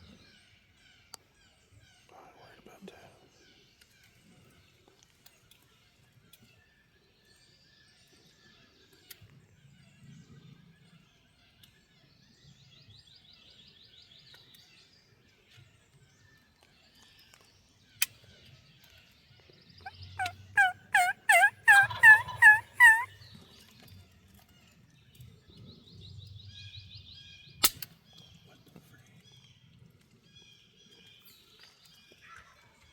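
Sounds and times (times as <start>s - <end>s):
faint songbirds twittering: 0.0s - 23.5s
wild turkey yelping: 20.2s - 23.2s.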